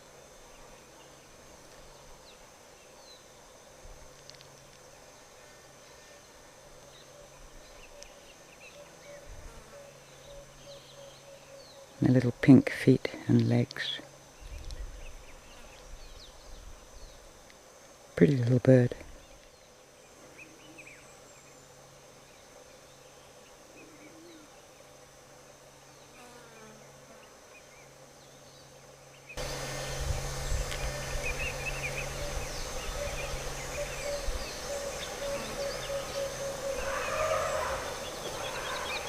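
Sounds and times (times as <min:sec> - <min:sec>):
insects buzzing: 0:00.0 - 0:39.0
small birds chirping: 0:27.6 - 0:39.0.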